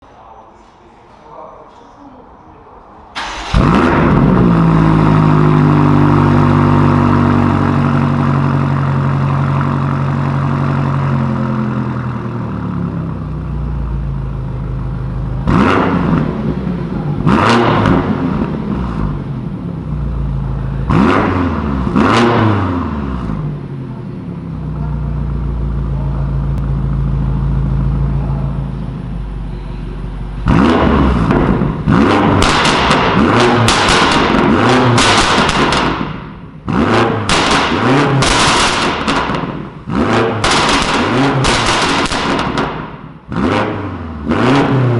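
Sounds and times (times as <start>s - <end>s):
car engine revving: 3.1s - 44.9s.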